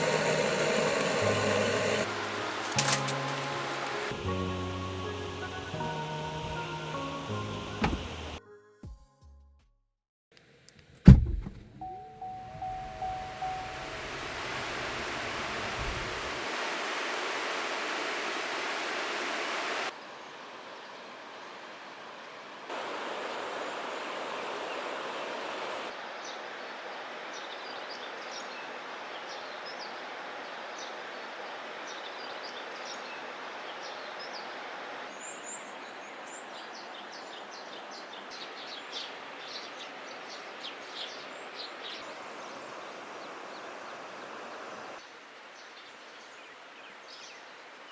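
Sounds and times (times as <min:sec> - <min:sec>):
small birds chirping: 0:00.0 - 0:04.1, 0:22.7 - 0:45.0
stream water flowing: 0:00.0 - 0:04.2, 0:13.4 - 0:47.9.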